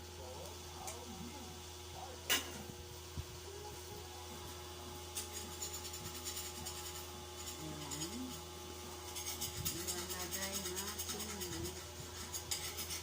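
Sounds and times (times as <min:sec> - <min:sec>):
steady low hum: 0:00.0 - 0:13.0
scratchy rubbing strokes: 0:05.3 - 0:08.3, 0:09.1 - 0:13.0.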